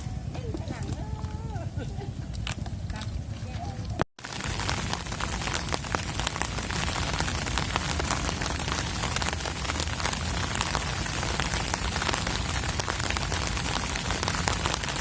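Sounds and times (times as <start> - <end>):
rain falling: 4.2 - 15.0.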